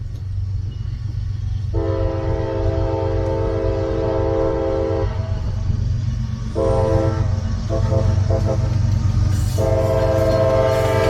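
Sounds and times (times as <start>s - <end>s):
locomotive low rumble: 0.0s - 11.0s
locomotive air horn blasts: 1.7s - 5.4s, 6.6s - 8.8s, 9.4s - 11.0s.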